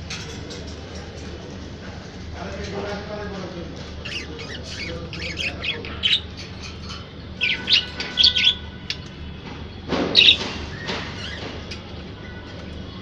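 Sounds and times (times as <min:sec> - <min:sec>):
budgerigar chirping: 0:04.0 - 0:06.3, 0:07.4 - 0:08.6.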